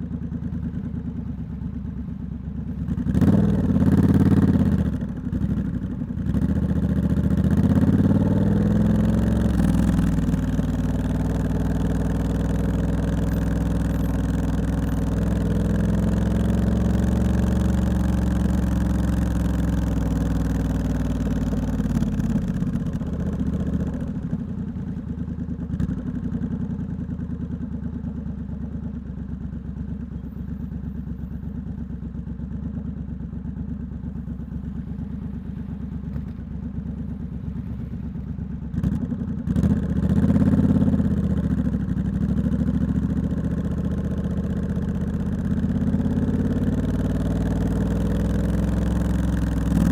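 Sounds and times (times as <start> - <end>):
motorcycle engine revving and idling: 0.0 - 49.9.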